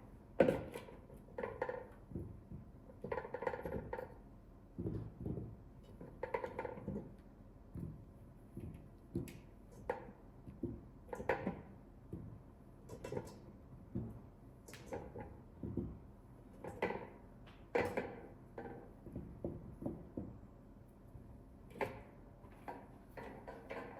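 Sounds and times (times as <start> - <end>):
kitchen items knocking and clattering: 0.4 - 4.2, 4.8 - 7.2, 7.8 - 20.4.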